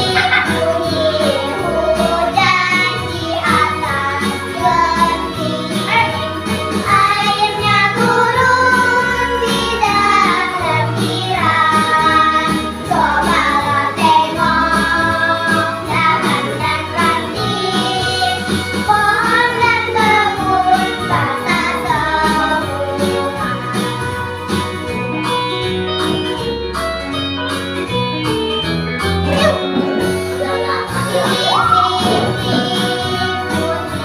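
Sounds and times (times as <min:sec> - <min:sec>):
girls singing together: 0:00.0 - 0:05.9, 0:06.8 - 0:23.4, 0:30.4 - 0:34.0
musical backing track: 0:00.0 - 0:34.0.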